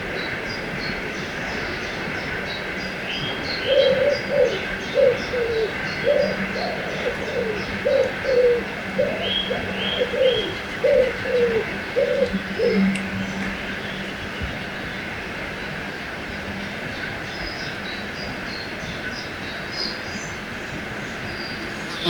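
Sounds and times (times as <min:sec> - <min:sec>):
songbirds chirping: 0:17.4 - 0:22.0
bird cooing two-note calls: 0:21.6 - 0:22.0.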